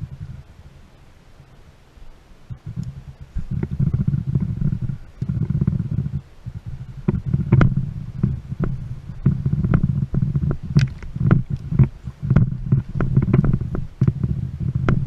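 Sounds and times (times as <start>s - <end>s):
low uneven rumbling: 0.0s - 15.0s
boat knocking and slapping: 2.5s - 15.0s.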